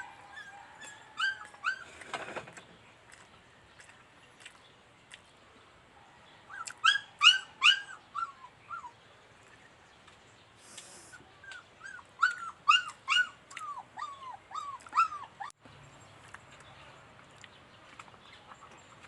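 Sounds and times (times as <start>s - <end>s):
dog whining: 0.3s - 2.4s, 6.5s - 8.9s, 11.4s - 15.5s.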